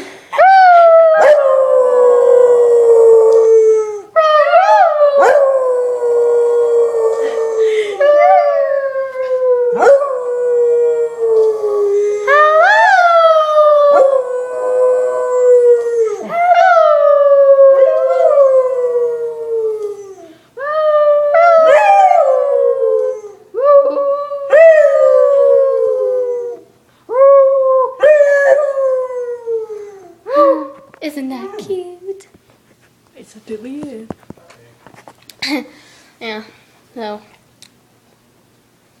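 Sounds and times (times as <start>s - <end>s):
dog howling: 0.4s - 30.8s.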